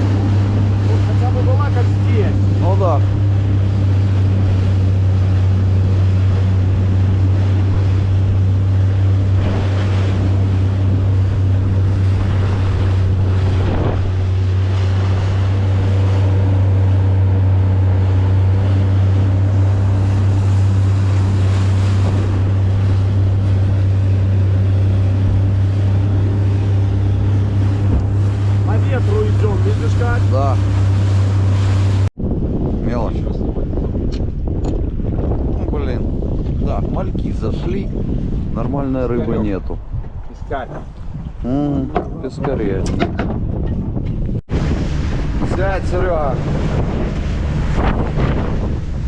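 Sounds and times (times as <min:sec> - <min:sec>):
boat motor droning: 0:00.0 - 0:32.1, 0:38.0 - 0:49.0
water splashing against hull: 0:00.0 - 0:32.8, 0:33.4 - 0:49.0
wind buffeting microphone: 0:00.0 - 0:49.0.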